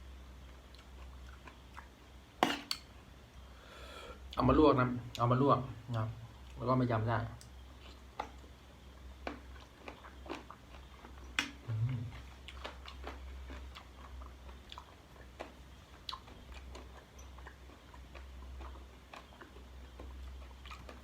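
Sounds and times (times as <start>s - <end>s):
person chewing and biting: 9.2s - 21.0s.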